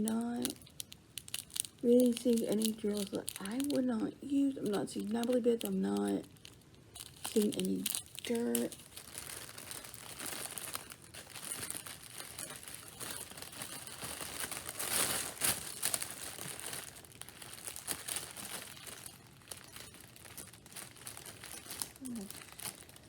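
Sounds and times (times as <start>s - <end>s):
plastic bags crinkling: 0.0s - 23.0s.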